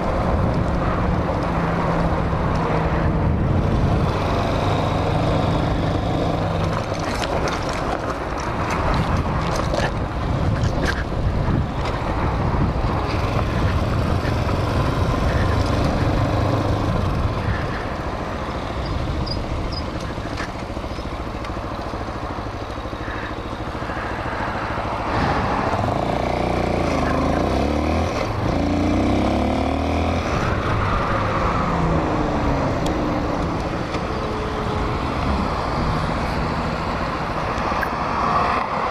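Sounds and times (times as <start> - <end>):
wind on microphone: 0.0 - 7.8, 8.4 - 20.3
motorcycle engine running: 0.0 - 37.6.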